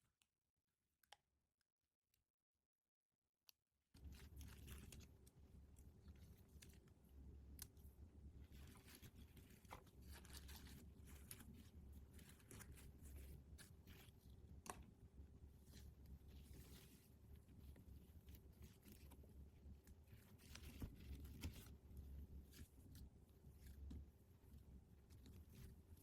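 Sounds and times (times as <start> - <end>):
toy packaging rustling and tearing: 8.5 - 14.3.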